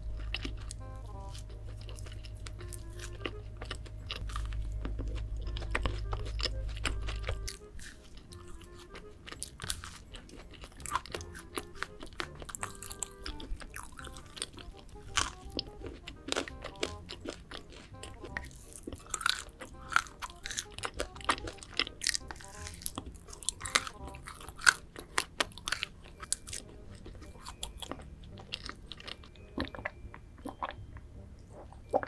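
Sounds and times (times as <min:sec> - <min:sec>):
background music with heavy bass: 0:00.0 - 0:10.1
crunching and chewing chocolate: 0:00.0 - 0:32.0.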